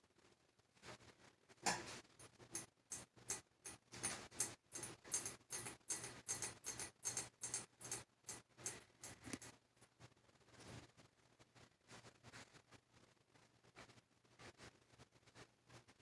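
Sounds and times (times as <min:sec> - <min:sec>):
ceiling fan humming: 0:02.5 - 0:09.5
ceiling fan ticking: 0:02.5 - 0:09.5.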